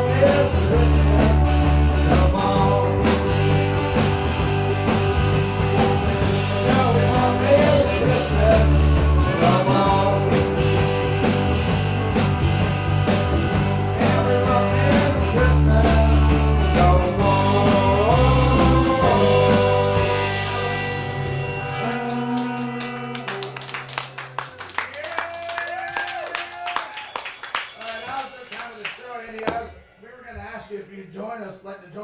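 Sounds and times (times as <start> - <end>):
live rock band playing: 0.0 - 24.6.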